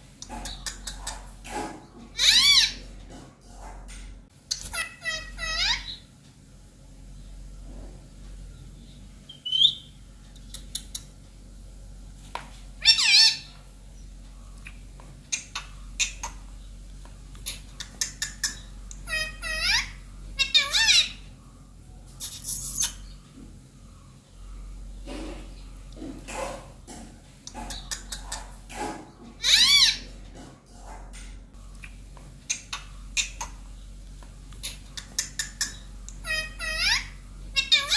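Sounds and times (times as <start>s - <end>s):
parakeet squawking: 2.1s - 2.9s, 4.5s - 6.0s, 9.3s - 9.9s, 12.8s - 13.6s, 14.6s - 16.5s, 17.4s - 21.3s, 29.4s - 30.2s, 34.6s - 37.9s.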